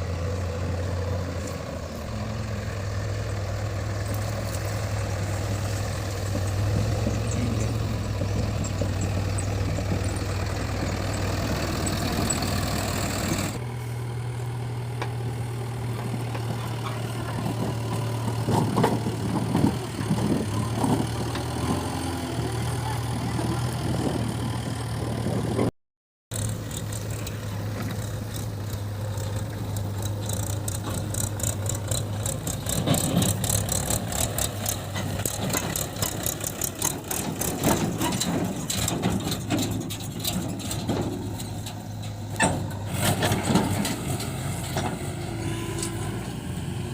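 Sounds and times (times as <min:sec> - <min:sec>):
diesel engines running: 0:00.0 - 0:25.7, 0:26.3 - 0:46.9.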